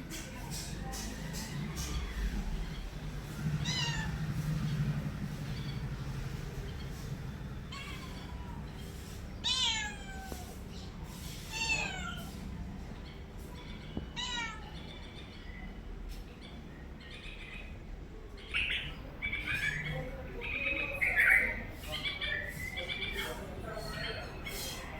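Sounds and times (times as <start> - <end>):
cat meowing: 3.6 - 4.2, 7.7 - 8.6, 9.4 - 10.6, 11.5 - 12.4, 14.0 - 14.9.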